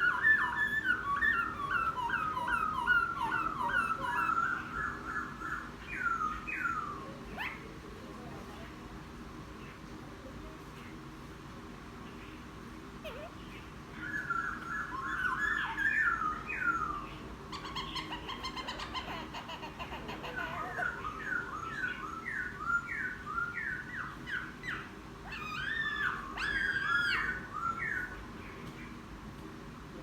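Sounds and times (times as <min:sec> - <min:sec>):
bird singing whistled song: 0:00.0 - 0:07.0, 0:14.0 - 0:17.1, 0:21.2 - 0:24.8, 0:25.4 - 0:28.2.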